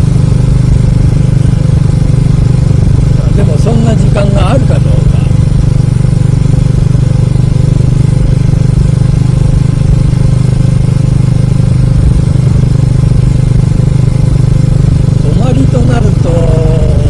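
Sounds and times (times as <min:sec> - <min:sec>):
motorcycle engine cruising: 0:00.0 - 0:17.0
wind noise from riding: 0:05.3 - 0:15.3.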